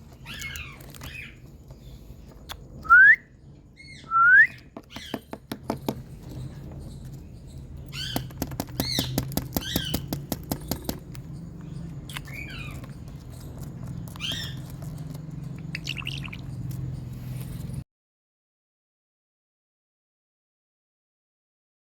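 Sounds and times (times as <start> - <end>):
parakeet chirping: 0.0 - 2.1, 3.8 - 17.4.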